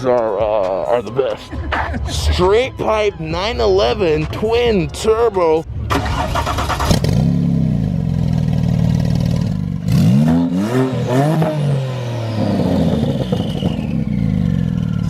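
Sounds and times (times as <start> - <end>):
sports car engine revving: 5.7 - 15.0.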